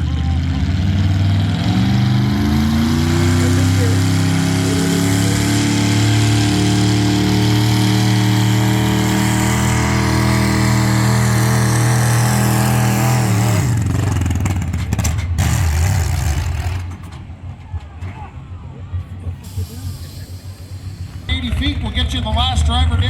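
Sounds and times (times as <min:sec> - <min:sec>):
tractor engine at high revs: 0:00.0 - 0:17.3.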